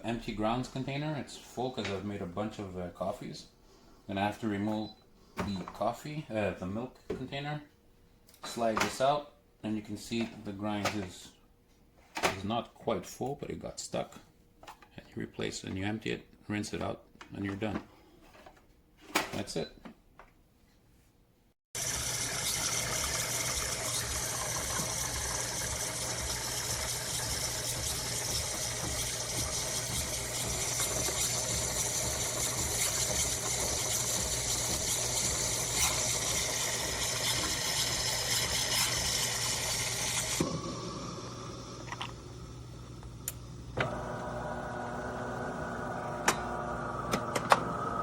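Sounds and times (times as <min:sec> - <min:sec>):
espresso machine pump humming: 0:21.8 - 0:48.0.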